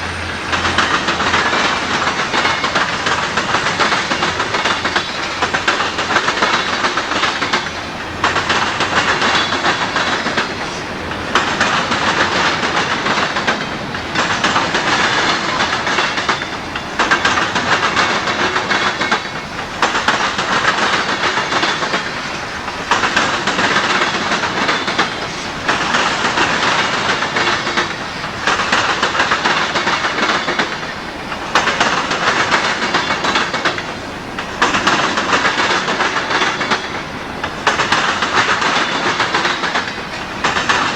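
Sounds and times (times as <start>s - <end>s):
train wheels clattering on rails: 0.0s - 40.9s.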